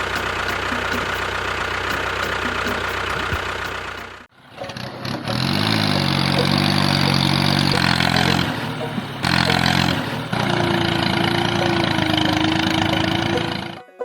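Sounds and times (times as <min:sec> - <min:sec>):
engine humming steadily: 0:00.0 - 0:13.8
engine starting: 0:00.0 - 0:13.9.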